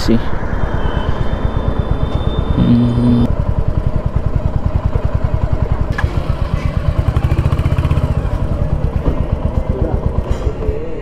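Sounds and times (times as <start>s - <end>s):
motorcycle engine thumping: 8.2s - 10.8s.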